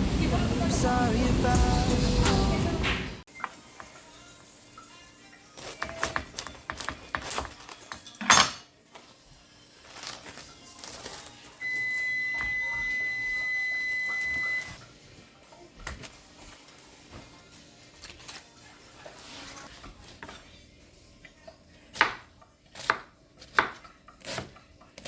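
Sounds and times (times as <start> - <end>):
high-pitched electronic beep: 11.6 - 14.7.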